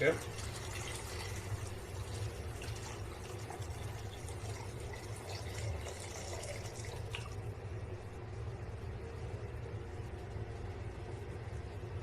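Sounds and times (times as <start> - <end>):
water pouring into pan: 0.0 - 7.4
steady low hum: 0.0 - 12.0.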